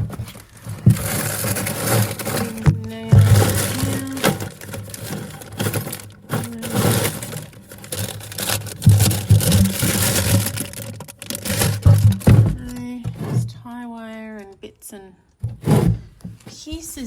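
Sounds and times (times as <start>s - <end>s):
screws and nails clinking: 0.8s - 12.1s.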